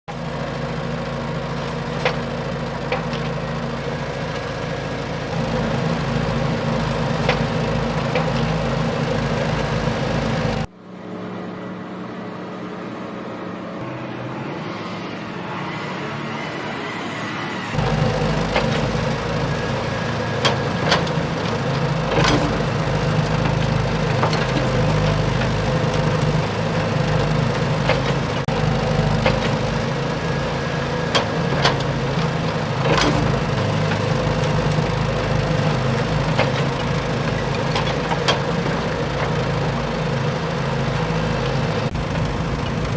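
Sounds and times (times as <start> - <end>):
excavator diesel engine running: 0.1 - 14.1, 17.7 - 42.9.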